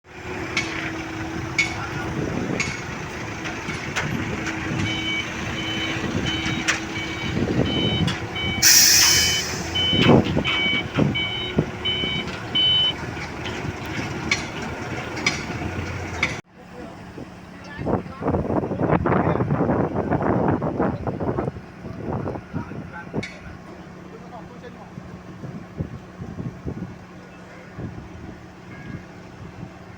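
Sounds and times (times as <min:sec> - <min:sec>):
truck reversing alarm beeping: 0:04.2 - 0:13.0
air hiss burst: 0:08.6 - 0:10.0.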